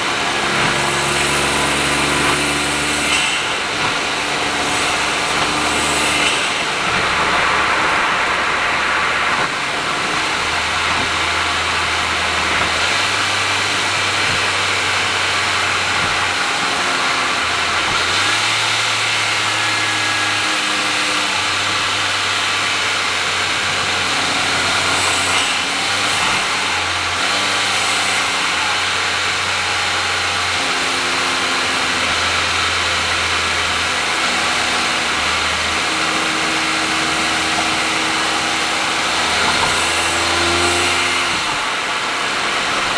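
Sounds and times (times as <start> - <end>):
car engine droning: 0.0 - 25.6
tyre and wind noise: 0.0 - 27.4.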